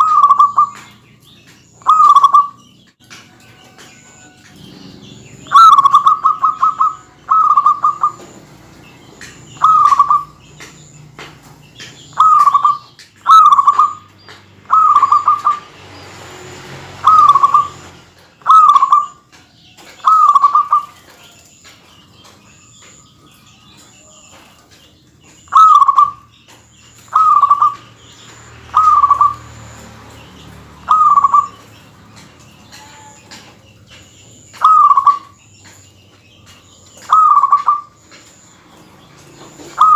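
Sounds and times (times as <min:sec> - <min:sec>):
dove cooing: 0:00.0 - 0:01.0, 0:01.8 - 0:02.7, 0:05.0 - 0:10.9, 0:11.9 - 0:15.7, 0:17.0 - 0:19.3, 0:19.9 - 0:21.2, 0:25.4 - 0:26.3, 0:27.1 - 0:29.6, 0:30.8 - 0:31.8, 0:34.6 - 0:35.4, 0:37.0 - 0:38.0, 0:39.4 - 0:39.9.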